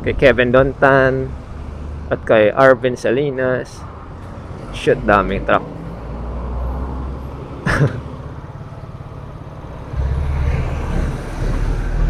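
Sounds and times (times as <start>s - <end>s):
motorcycle engine and wind rumble: 0.0s - 1.3s
traffic: 0.0s - 12.0s.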